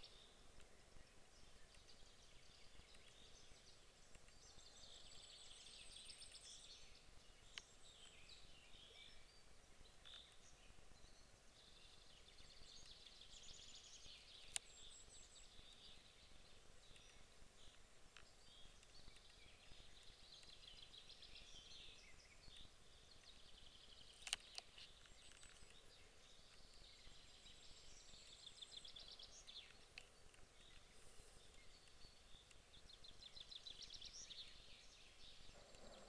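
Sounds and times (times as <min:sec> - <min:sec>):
songbirds trilling: 0:00.0 - 0:36.0
sharp click: 0:24.2 - 0:25.7.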